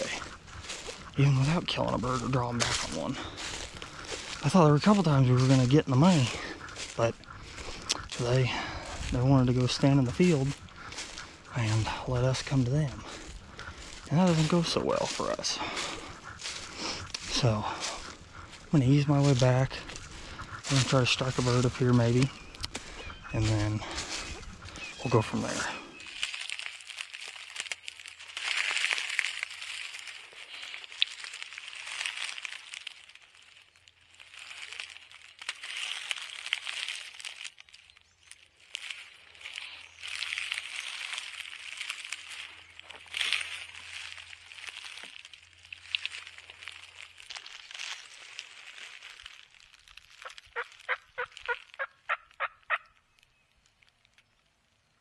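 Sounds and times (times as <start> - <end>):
footsteps crunching through dry leaves: 0.0 - 54.5
turkey yelps: 50.2 - 53.0.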